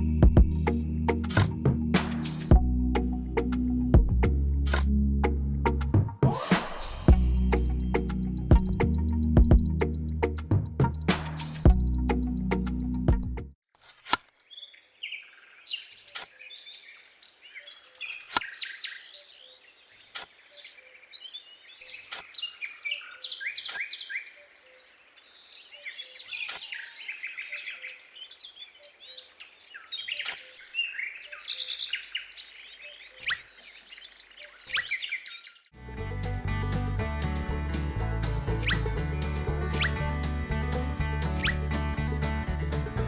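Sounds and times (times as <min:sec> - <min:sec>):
sharp click: 0:01.2 - 0:02.5, 0:08.8 - 0:11.8
birds chirping and trilling: 0:14.4 - 0:35.7.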